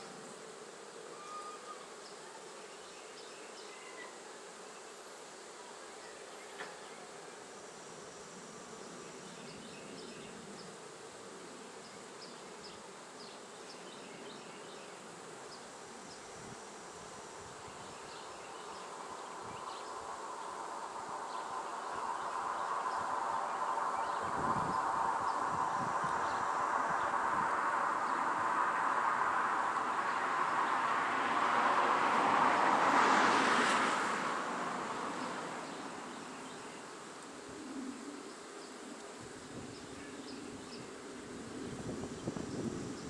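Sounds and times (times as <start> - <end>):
honey bees buzzing: 0.0 - 3.3.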